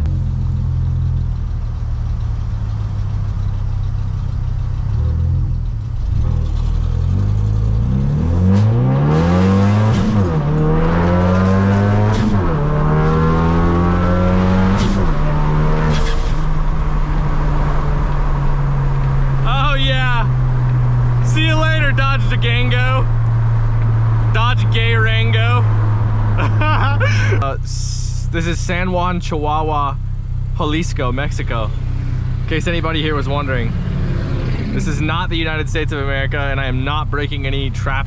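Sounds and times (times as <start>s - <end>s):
car engine revving: 0.0s - 38.0s
engine sharp cracks: 14.6s - 19.5s.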